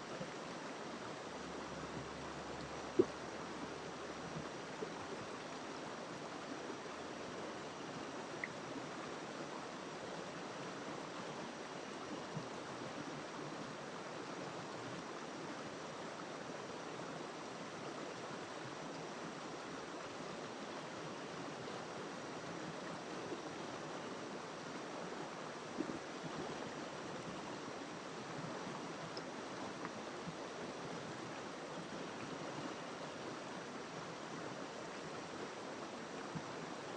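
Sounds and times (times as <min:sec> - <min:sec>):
faint small ticks: 0:02.6 - 0:03.3, 0:08.4 - 0:08.7, 0:29.1 - 0:30.0.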